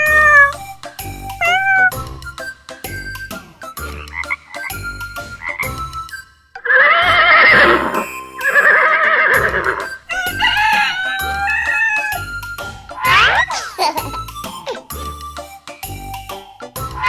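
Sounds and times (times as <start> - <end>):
sliding cartoon tones: 0.0 - 2.2, 6.6 - 17.0
warbling cartoon calls: 0.0 - 2.4, 6.6 - 17.0
light children's music: 0.0 - 17.0.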